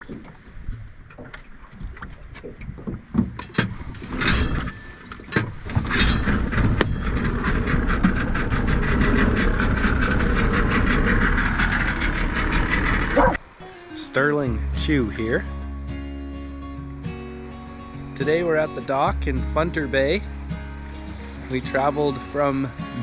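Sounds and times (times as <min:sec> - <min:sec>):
outboard motor running: 0:05.4 - 0:13.4, 0:18.2 - 0:23.0.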